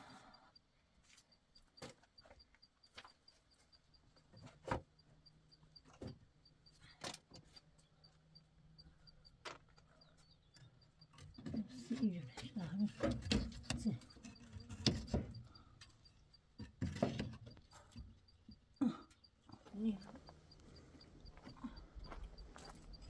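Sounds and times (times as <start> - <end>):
faint low hum: 0.0 - 23.0
faint knocks and clicks: 8.8 - 23.0.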